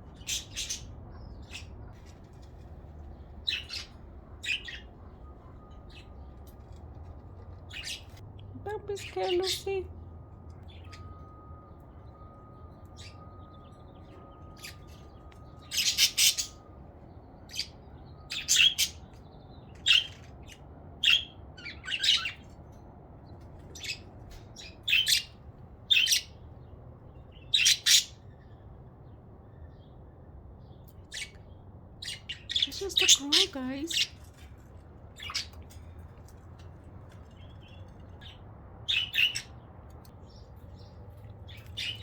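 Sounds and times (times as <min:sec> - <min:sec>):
budgerigars chirping and squawking: 0:00.1 - 0:08.2, 0:10.6 - 0:16.8, 0:17.4 - 0:22.6, 0:23.6 - 0:26.4, 0:27.3 - 0:28.5, 0:30.9 - 0:34.5, 0:35.1 - 0:36.4, 0:37.1 - 0:42.0.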